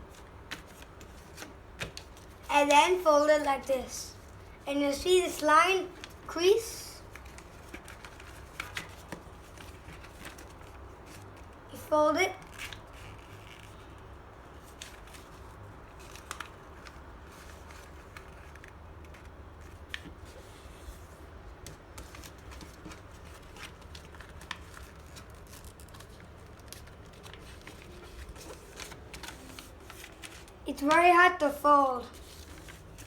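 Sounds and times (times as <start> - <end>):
paper crinkling: 7.0 - 11.6, 14.6 - 20.8, 21.7 - 30.6, 32.0 - 33.0.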